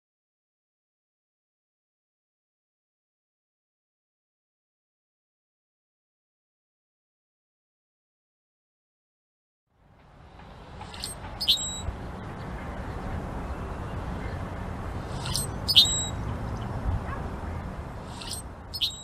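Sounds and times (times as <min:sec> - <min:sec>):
bird giving sharp high calls: 0:10.8 - 0:12.0, 0:15.0 - 0:16.2, 0:18.0 - 0:19.0.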